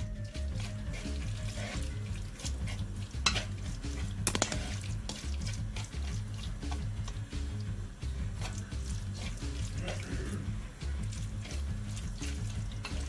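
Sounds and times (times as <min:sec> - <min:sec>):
background music with bass line: 0:00.0 - 0:13.0.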